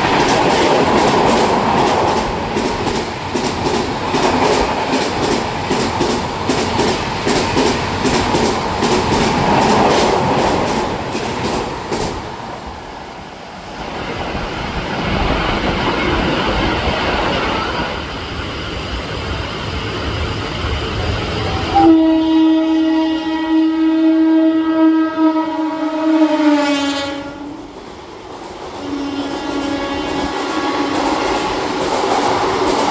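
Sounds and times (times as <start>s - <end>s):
train wheels clattering: 0.0s - 12.7s, 27.6s - 32.9s
train rumble: 0.0s - 32.9s
locomotive horn: 21.4s - 27.6s, 28.8s - 31.2s.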